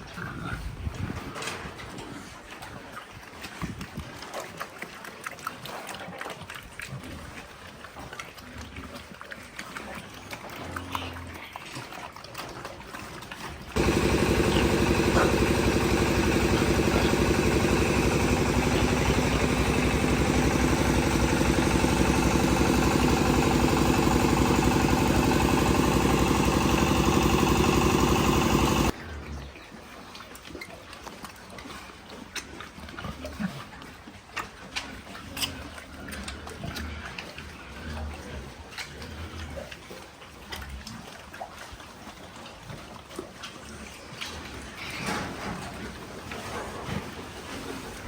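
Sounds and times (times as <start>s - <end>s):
motor engine running: 13.8s - 29.0s.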